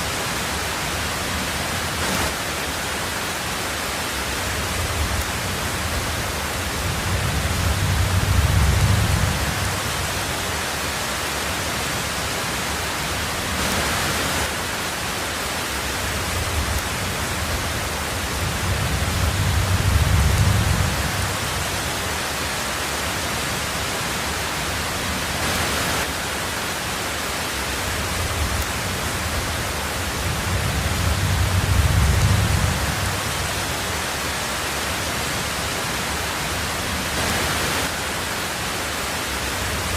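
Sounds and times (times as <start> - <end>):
heavy rain on a tin roof: 0.0 - 39.9
distant thunder rumbles: 4.6 - 10.4, 16.1 - 22.2, 28.0 - 33.9.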